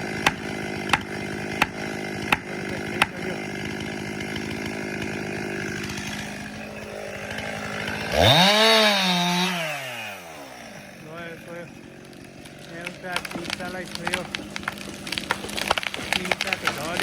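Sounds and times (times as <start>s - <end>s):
chainsaw running: 0.0s - 17.0s
sharp knocks: 0.2s - 3.2s.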